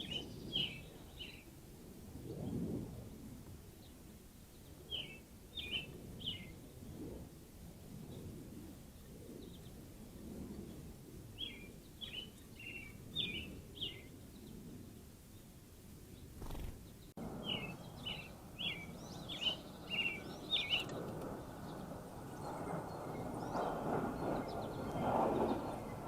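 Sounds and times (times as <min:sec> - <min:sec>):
songbird singing descending notes: 0:00.0 - 0:01.5, 0:16.4 - 0:23.6.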